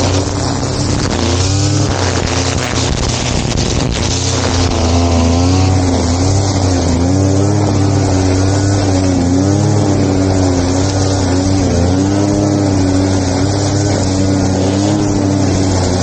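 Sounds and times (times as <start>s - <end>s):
two-stroke grass cutter engine: 0.0s - 16.0s.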